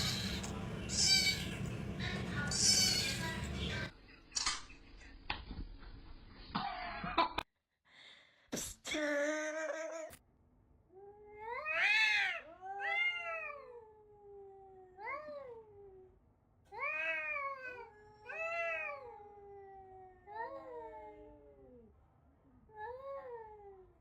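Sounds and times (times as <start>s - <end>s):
cat meowing: 0.0s - 1.6s, 2.5s - 3.3s, 11.5s - 13.8s.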